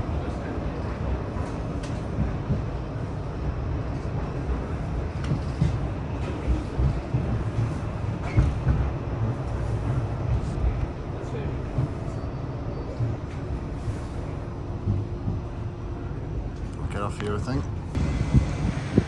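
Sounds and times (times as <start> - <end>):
tram rumbling along track: 0.0 - 19.0
tram wheels knocking: 5.2 - 10.9, 18.0 - 19.0.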